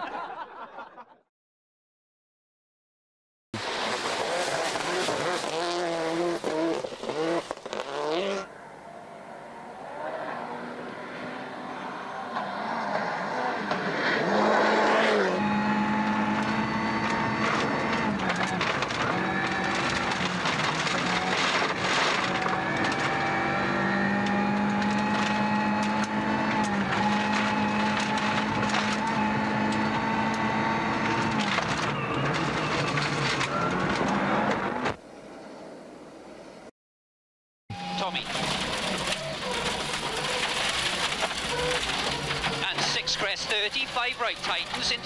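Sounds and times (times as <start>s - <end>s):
rally car engine revving: 3.6s - 35.0s, 37.7s - 45.0s
gravel clattering under car: 17.4s - 23.2s, 38.2s - 45.0s.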